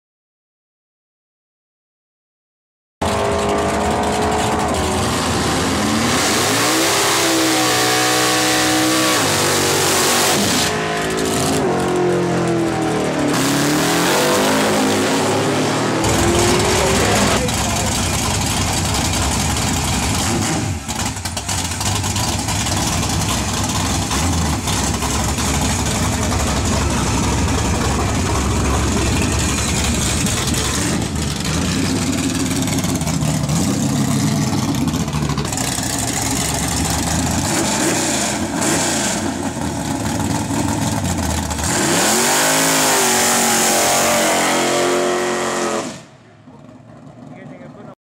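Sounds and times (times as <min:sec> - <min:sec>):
car engine revving: 0:03.0 - 0:47.8
loud rushing noise: 0:13.3 - 0:21.1, 0:23.0 - 0:35.2.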